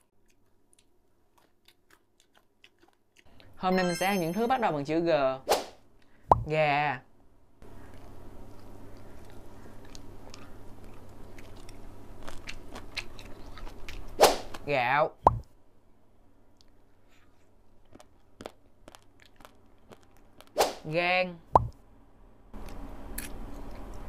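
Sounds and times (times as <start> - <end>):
chewing with wet mouth clicks: 0.0 - 3.6, 7.8 - 14.1, 16.6 - 20.5, 22.6 - 24.0.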